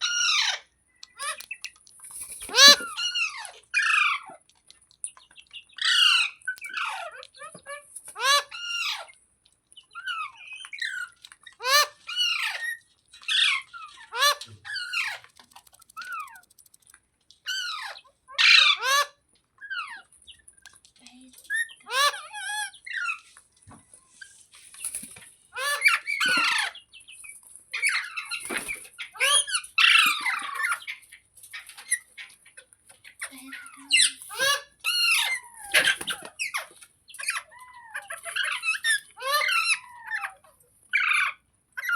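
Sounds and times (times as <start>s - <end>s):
parrot squawking: 2.4s - 4.2s, 10.0s - 16.5s, 17.5s - 20.1s, 25.5s - 26.8s, 33.2s - 41.9s.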